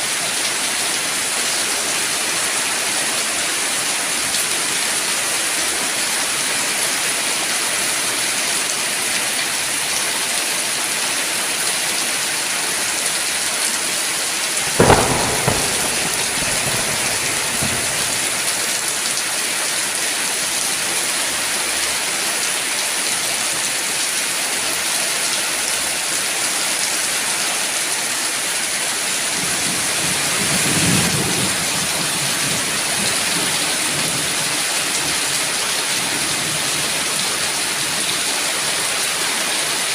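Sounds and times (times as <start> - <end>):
heavy rain falling: 0.0 - 39.9
thunder crack: 14.6 - 18.9
thunder rumbling: 14.6 - 18.9.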